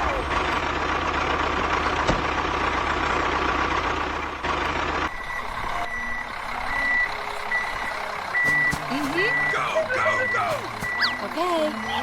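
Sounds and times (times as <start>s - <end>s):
truck reversing alarm beeping: 5.0s - 12.0s.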